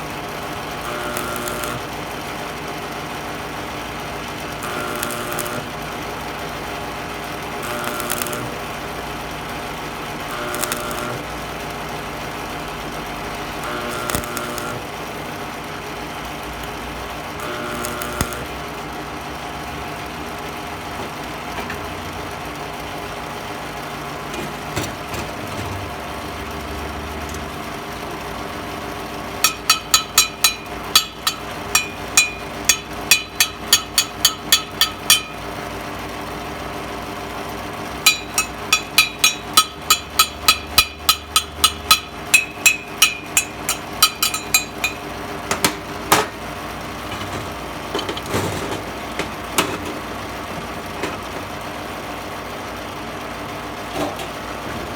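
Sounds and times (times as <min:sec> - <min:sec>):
machine hum: 0:25.9 - 0:36.6, 0:37.8 - 0:48.2
hammer striking metal: 0:29.4 - 0:35.6, 0:38.0 - 0:46.3.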